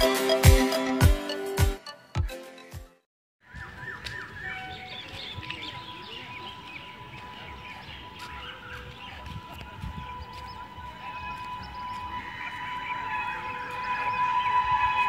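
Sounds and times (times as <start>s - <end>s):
birds chirping: 3.4s - 15.0s
outdoor background noise: 3.4s - 15.0s.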